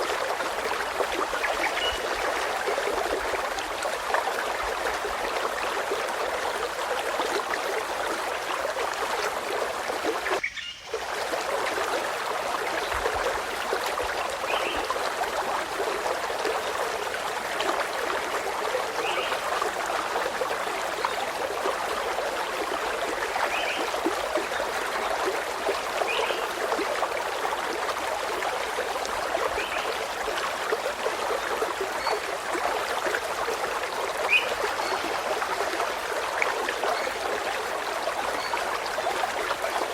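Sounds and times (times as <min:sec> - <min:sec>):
stream water flowing: 0:00.0 - 0:39.9
faint bird chirps: 0:10.4 - 0:11.0.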